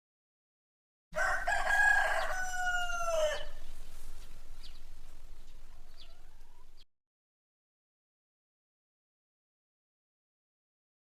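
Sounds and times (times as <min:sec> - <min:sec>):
rooster crowing: 0:01.2 - 0:06.8
faint hiss: 0:02.2 - 0:06.8.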